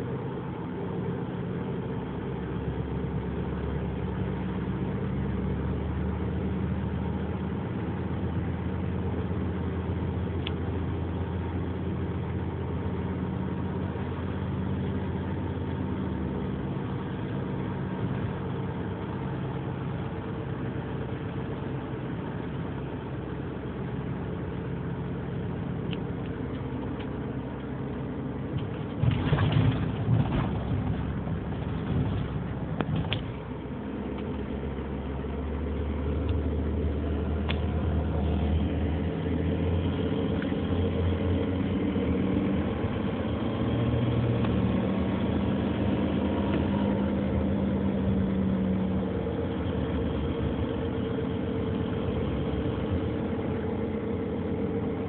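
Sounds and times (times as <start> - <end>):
car engine idling: 0.0 - 55.0
engine rumble: 0.0 - 55.0
engine clicking and tapping: 28.5 - 34.5.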